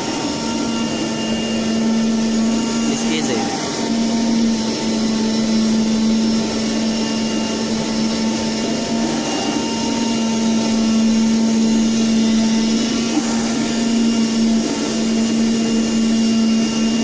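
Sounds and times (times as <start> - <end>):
cutting machine whirring: 0.0 - 17.0.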